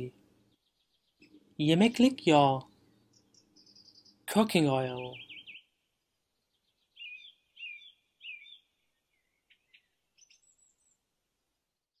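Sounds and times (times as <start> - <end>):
faint bird chirping: 0.0 - 11.3.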